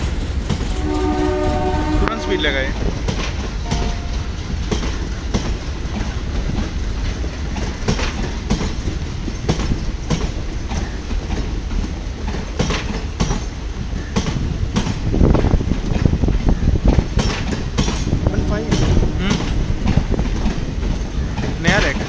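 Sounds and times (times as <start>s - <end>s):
train wheels clacking over rail joints: 0.0s - 2.0s, 2.6s - 22.0s
train rumble: 0.0s - 22.0s.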